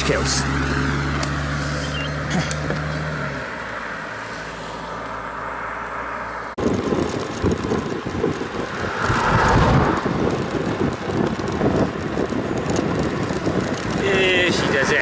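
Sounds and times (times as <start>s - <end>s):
low wind buffeting: 5.2s - 15.0s
wind rushing over microphone: 6.6s - 15.0s.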